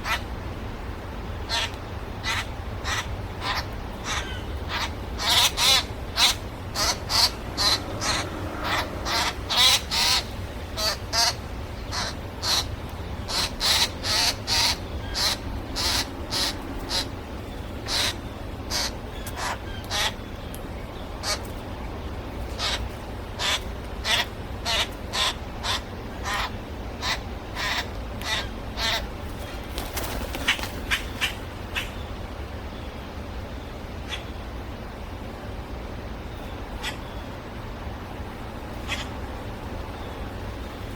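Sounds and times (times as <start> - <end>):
steady low rumble: 0.0 - 29.7
birds giving harsh calls: 1.4 - 32.1.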